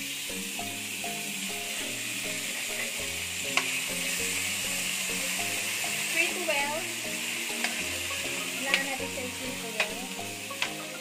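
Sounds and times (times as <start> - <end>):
tuna sizzling in oil: 0.0 - 11.0
spoon stirring in pan: 7.1 - 9.1.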